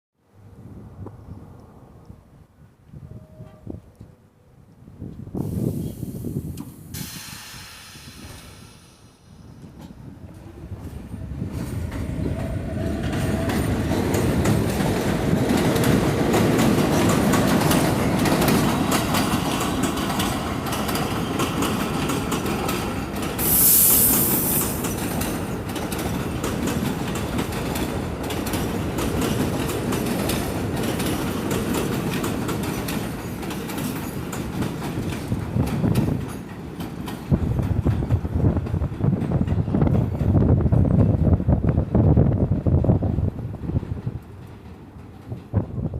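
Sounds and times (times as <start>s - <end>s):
subway train rumble: 0.4s - 45.9s
wheels clacking over rail joints: 9.7s - 41.4s, 43.6s - 45.9s
train motor whine: 23.4s - 24.9s
short high-pitched burst: 23.4s - 25.0s.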